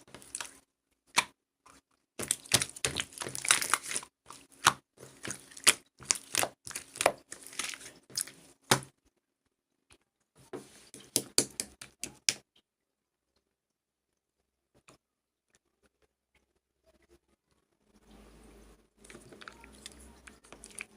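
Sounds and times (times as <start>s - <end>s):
crisp crackling and crunching: 0.0s - 9.1s, 19.0s - 20.9s.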